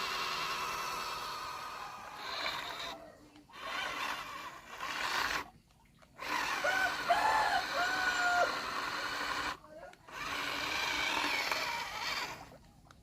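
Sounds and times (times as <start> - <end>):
toy truck motor whirring: 0.0 - 5.6, 6.2 - 13.0.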